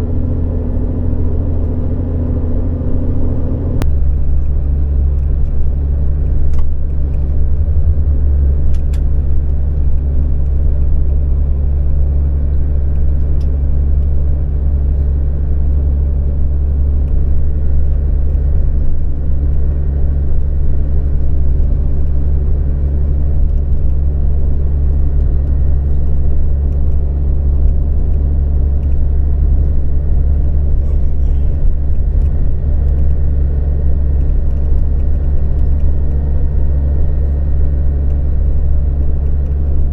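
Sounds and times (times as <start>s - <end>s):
low rumble of bus engine: 0.0s - 39.9s
road noise: 0.0s - 39.9s.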